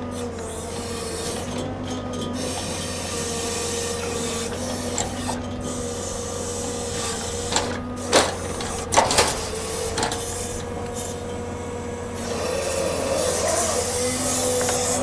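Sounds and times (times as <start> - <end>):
heavy machinery whine: 0.0 - 15.0.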